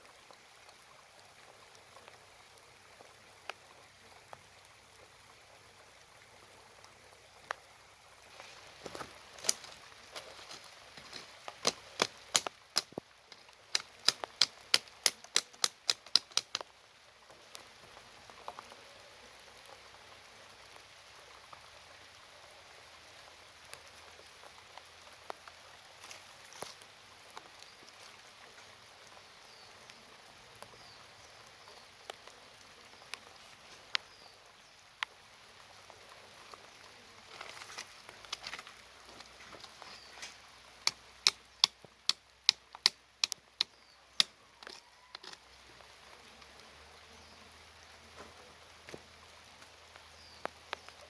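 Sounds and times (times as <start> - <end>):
low hiss: 0.0 - 51.0
wooden hive parts clicking and knocking: 8.9 - 16.7, 37.3 - 45.4.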